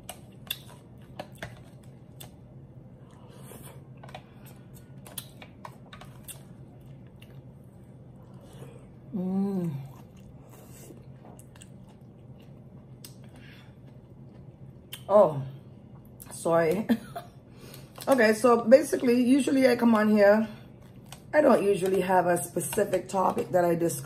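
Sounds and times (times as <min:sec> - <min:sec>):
chewing and lip smacking: 0:00.0 - 0:03.3, 0:04.4 - 0:07.6, 0:09.8 - 0:15.1
person humming mmm: 0:09.1 - 0:10.0.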